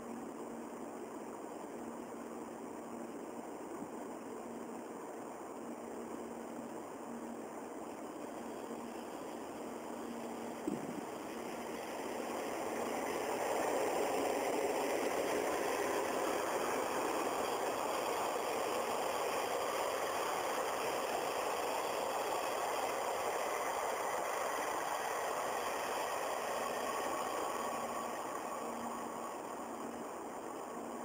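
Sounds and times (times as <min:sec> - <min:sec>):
passenger train passing: 0:07.6 - 0:31.0.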